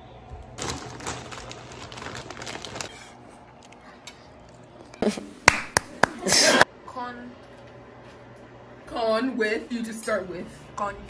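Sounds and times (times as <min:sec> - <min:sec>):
tortilla chip crunching: 0:00.6 - 0:04.9.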